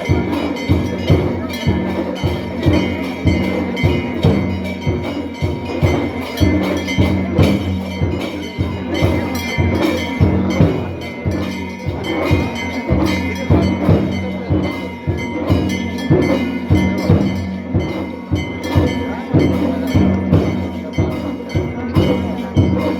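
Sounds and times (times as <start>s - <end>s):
drums beating steadily: 0.0s - 22.9s
ringing bells: 0.0s - 22.9s.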